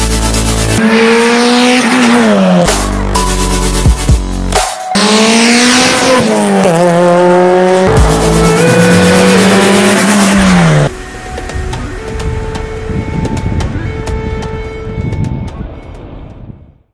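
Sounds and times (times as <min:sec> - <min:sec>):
car engine revving high: 0:00.6 - 0:03.1, 0:04.9 - 0:11.2.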